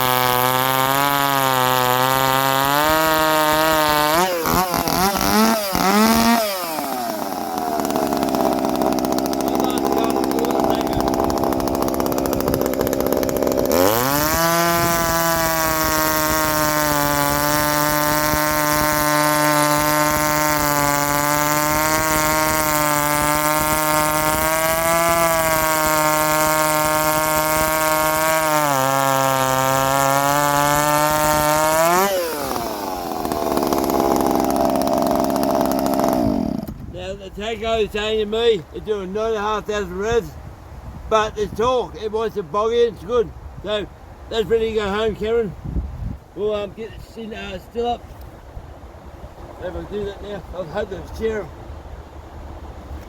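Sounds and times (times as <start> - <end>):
chainsaw revving: 0.0 - 36.8.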